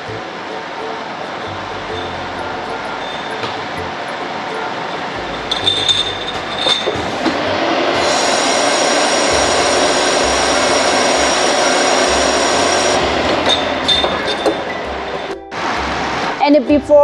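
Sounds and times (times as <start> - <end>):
washing machine rushing noise: 5.1 - 16.4.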